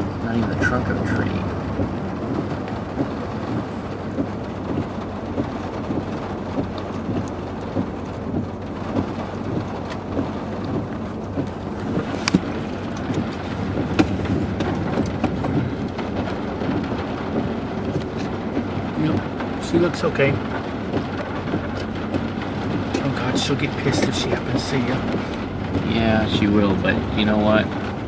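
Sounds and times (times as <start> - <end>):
road and engine rumble in car: 0.0 - 28.0
light ticks: 1.8 - 16.3.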